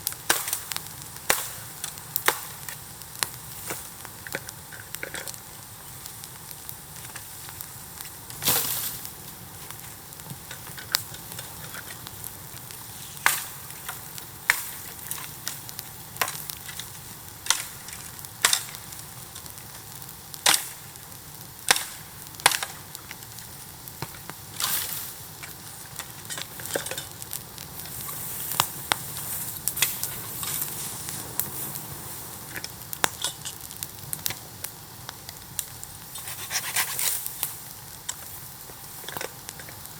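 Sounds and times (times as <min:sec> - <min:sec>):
bamboo bonfire crackling: 0:00.0 - 0:39.9.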